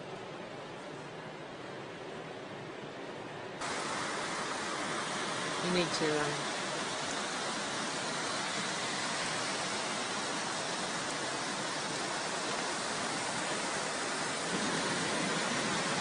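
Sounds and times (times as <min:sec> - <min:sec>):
water rushing: 0:03.6 - 0:16.0.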